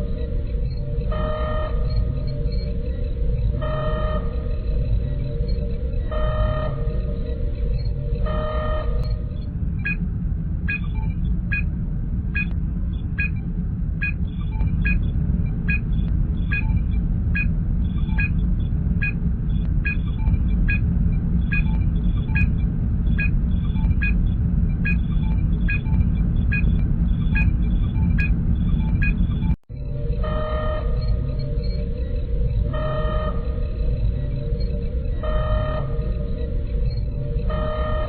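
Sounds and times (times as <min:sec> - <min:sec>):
low engine hum: 0:00.0 - 0:38.0.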